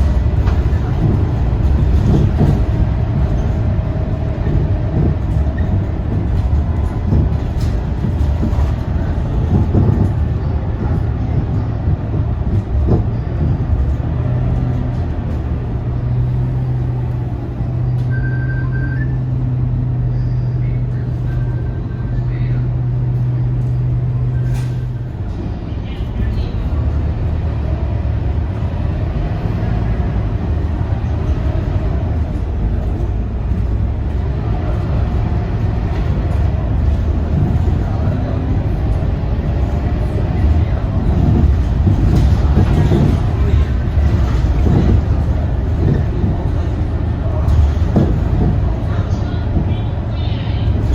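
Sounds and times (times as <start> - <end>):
bus diesel engine rumble: 0.0 - 50.9
knocks from bus body: 41.0 - 49.2.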